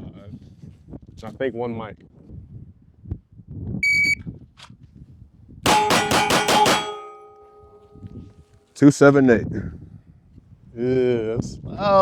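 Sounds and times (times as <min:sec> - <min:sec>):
rapid pistol shots: 0:05.7 - 0:07.8
ringing tone: 0:05.7 - 0:08.2.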